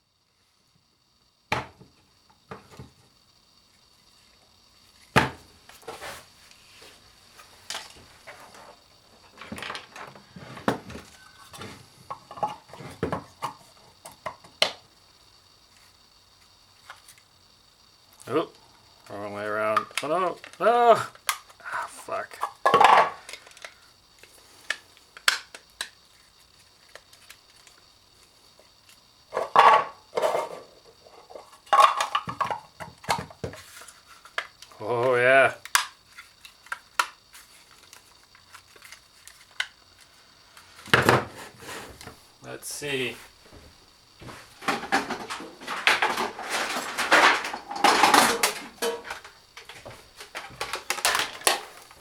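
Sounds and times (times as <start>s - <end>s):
plastic and metal parts clattering: 44.6s - 52.0s.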